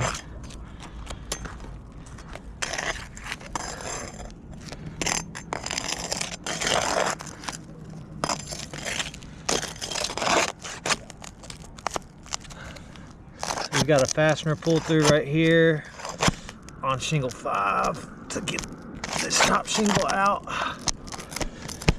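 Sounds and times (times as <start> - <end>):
shingles scraping and crunching: 0.0 - 21.9.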